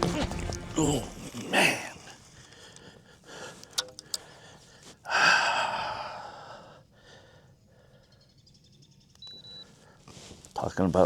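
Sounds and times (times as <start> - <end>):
light clicks: 3.5 - 4.4
person sighing heavily: 5.1 - 6.6.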